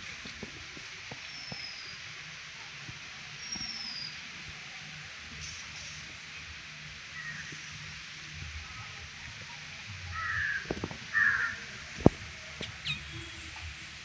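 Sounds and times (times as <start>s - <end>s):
steady hiss: 0.0s - 14.0s
harsh bird calls: 10.2s - 11.6s, 12.6s - 13.4s.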